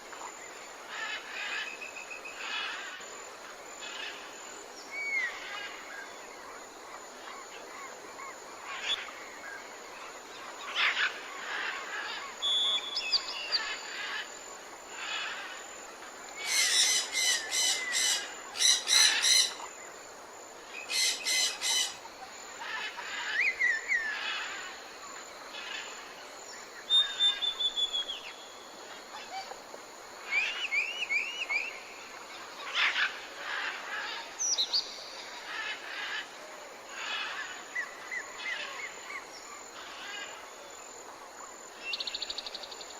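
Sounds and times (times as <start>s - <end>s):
background hiss: 0.0s - 42.9s
whistled bird notes: 12.4s - 13.7s, 26.9s - 28.4s.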